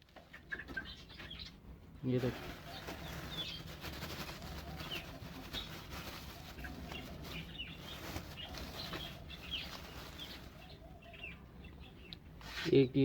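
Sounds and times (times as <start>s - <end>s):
small birds chirping: 0.0s - 13.0s
rustling: 2.0s - 11.2s, 12.4s - 12.8s.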